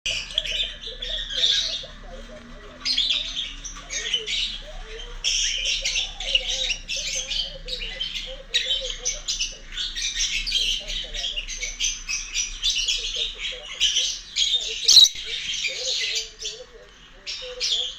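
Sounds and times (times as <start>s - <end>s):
lovebird shrill chattering calls: 13.8s - 16.3s.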